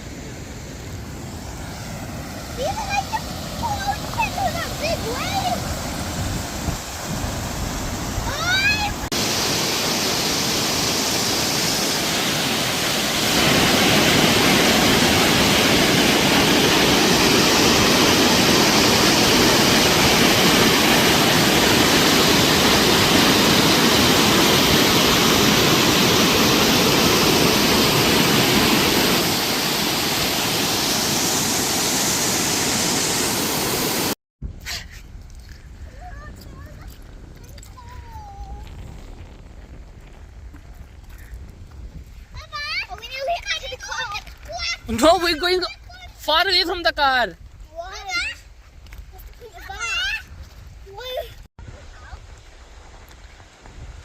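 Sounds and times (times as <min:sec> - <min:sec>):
waterfall roaring: 0:00.0 - 0:34.2.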